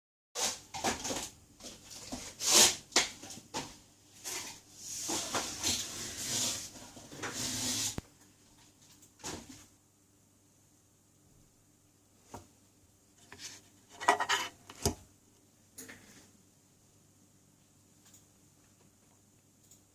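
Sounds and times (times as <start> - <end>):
scraping and rubbing: 4.2 - 8.0, 13.2 - 14.9.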